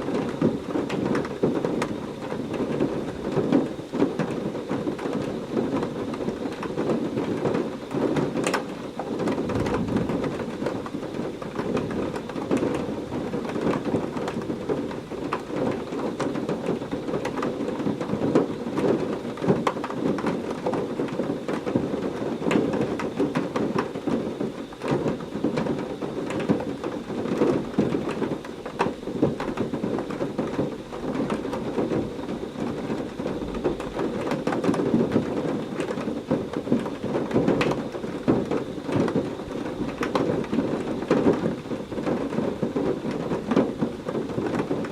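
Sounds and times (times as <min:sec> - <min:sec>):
heavy rain pouring: 0:00.0 - 0:44.9
thunder rumbling: 0:09.2 - 0:14.8.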